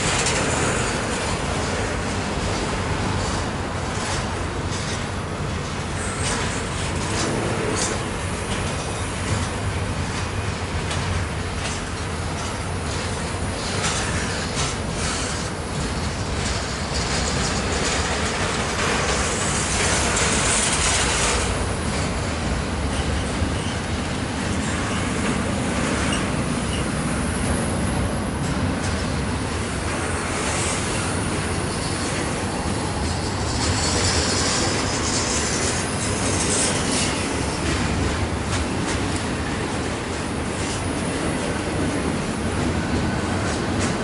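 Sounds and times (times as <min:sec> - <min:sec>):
train wheels clacking on rails: 0:00.0 - 0:44.0
wheel squeal: 0:22.9 - 0:23.9, 0:26.0 - 0:27.0.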